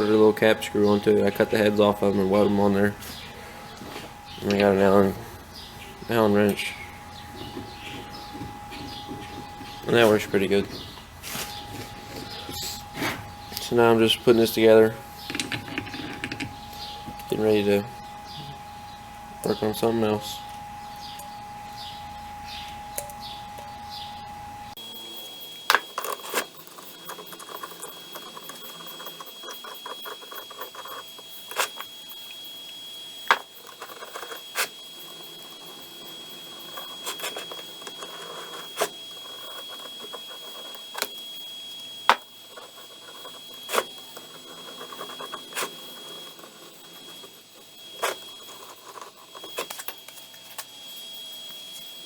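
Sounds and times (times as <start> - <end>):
faint high whine: 0.0 - 52.0
metal rattling and scraping: 0.4 - 17.2.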